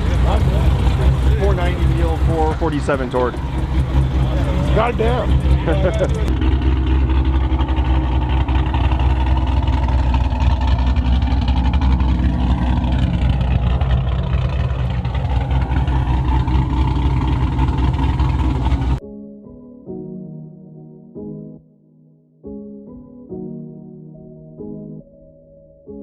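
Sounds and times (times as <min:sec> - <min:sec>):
car engine idling: 0:00.0 - 0:19.0
soft music: 0:19.0 - 0:26.0.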